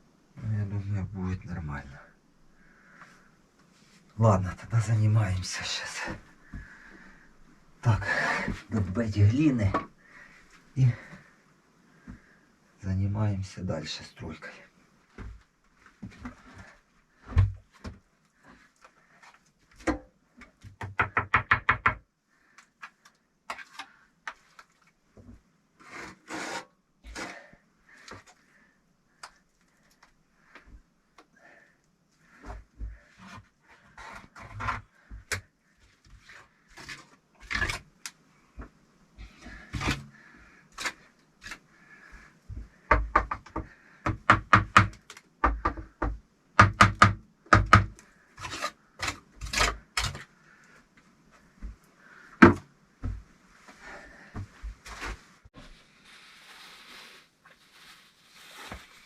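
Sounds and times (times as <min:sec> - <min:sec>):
scraping of clay mortar: 0:48.4 - 0:50.3.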